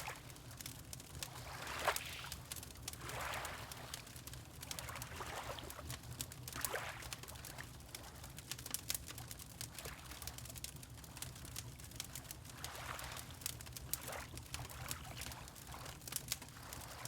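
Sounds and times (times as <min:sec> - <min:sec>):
wood fire crackling: 0:00.0 - 0:01.4, 0:02.3 - 0:03.1, 0:05.8 - 0:16.6
water lapping: 0:01.4 - 0:02.4, 0:03.0 - 0:04.0, 0:04.9 - 0:05.9.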